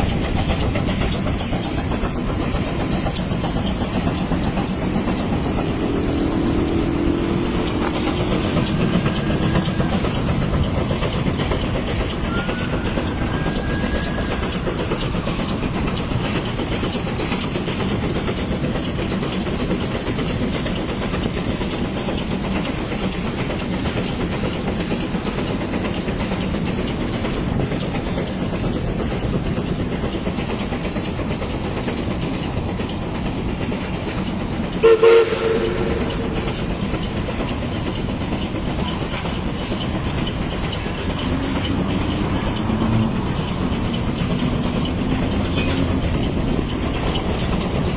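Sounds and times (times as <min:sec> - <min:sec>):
steam train clattering on rails: 0:00.0 - 0:47.9
short loud train toot: 0:34.8 - 0:36.4.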